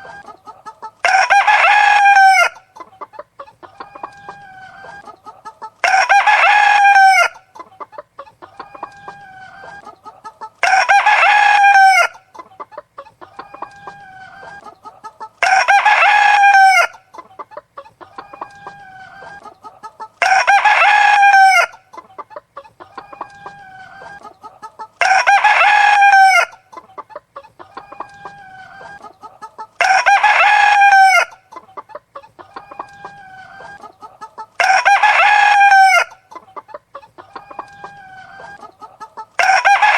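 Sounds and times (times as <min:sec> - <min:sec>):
chickens clucking: 0:00.0 - 0:39.9
rooster crowing: 0:01.0 - 0:02.6, 0:05.8 - 0:07.4, 0:10.6 - 0:12.2, 0:15.4 - 0:17.0, 0:20.2 - 0:21.8, 0:25.0 - 0:26.6, 0:29.8 - 0:31.4, 0:34.6 - 0:36.2, 0:39.4 - 0:39.9.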